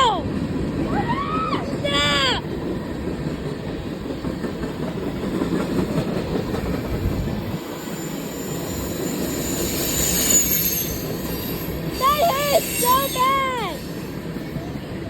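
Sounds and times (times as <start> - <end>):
train wheels rolling on rails: 0.0 - 15.0
high wheel squeal: 7.6 - 14.7.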